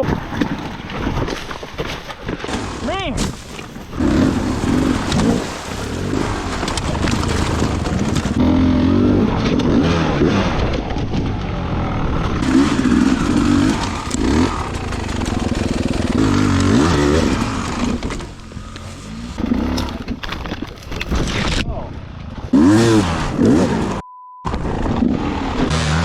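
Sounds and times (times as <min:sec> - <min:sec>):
dirt bike engine revving: 0:02.5 - 0:20.2, 0:22.5 - 0:24.0, 0:24.7 - 0:26.0.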